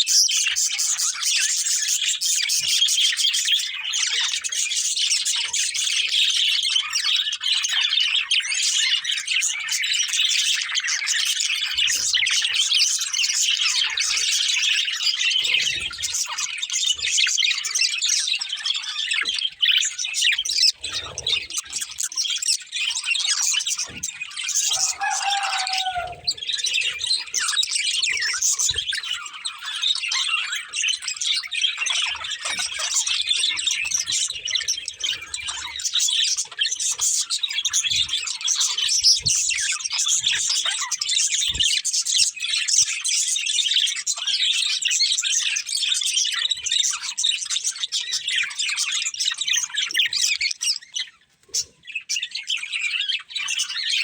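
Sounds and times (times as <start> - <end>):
budgerigars chirping: 0.0 - 54.0
low falling bird call: 24.6 - 27.1.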